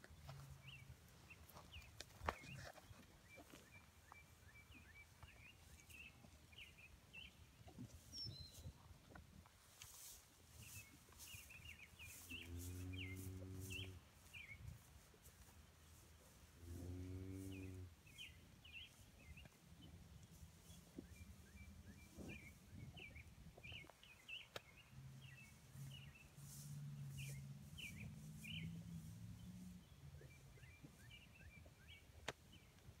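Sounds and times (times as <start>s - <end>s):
small birds chirping: 15.8s - 33.0s.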